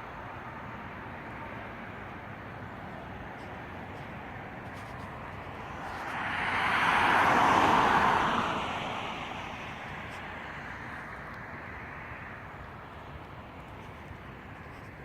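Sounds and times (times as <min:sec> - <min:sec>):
car driving past: 0:04.8 - 0:10.2.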